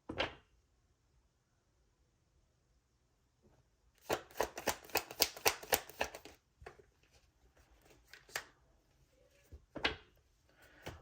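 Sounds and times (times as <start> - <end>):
cards being shuffled by hand: 4.0 - 8.6.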